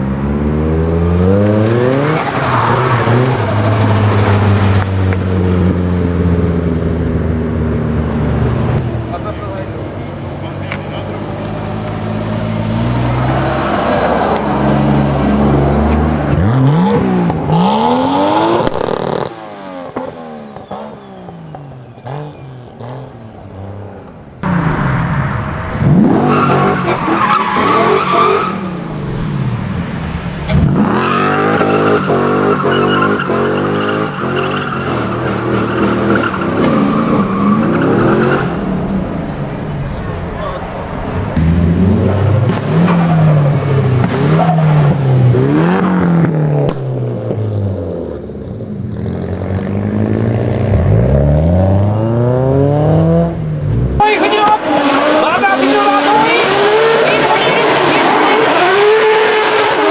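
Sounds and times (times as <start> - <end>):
car engine revving hard: 0.0 - 47.6, 49.0 - 59.9
tyres squealing: 20.6 - 45.9.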